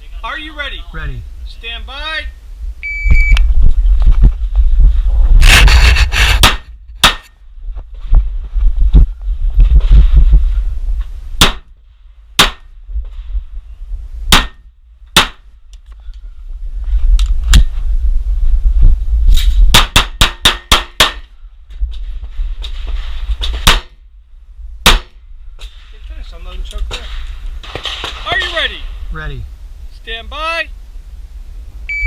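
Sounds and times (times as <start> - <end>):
low rumble: 0.8 - 19.8.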